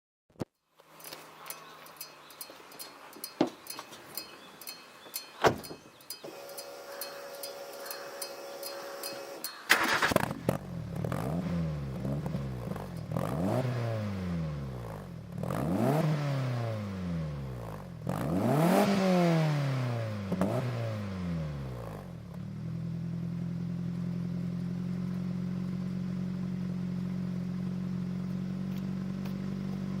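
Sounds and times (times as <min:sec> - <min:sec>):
car engine revving and idling: 0:06.3 - 0:30.0.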